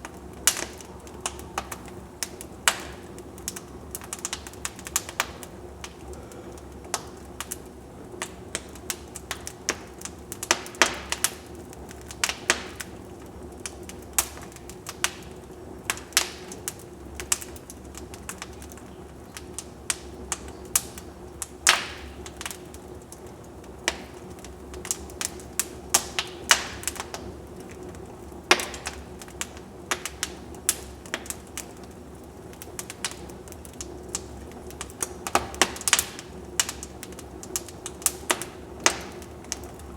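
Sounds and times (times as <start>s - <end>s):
low rush of fire: 0.0s - 39.9s
wood fire crackling: 0.0s - 39.9s.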